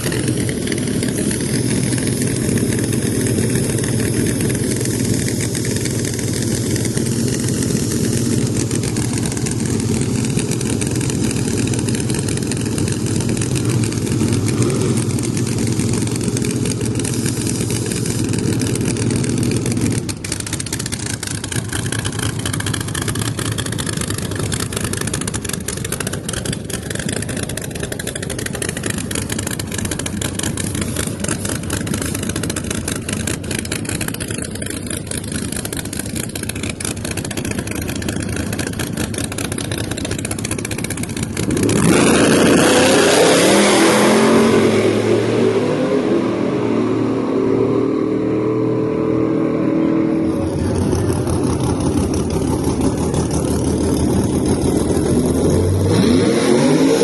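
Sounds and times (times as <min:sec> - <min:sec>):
drag cars idling: 0:00.0 - 0:57.0.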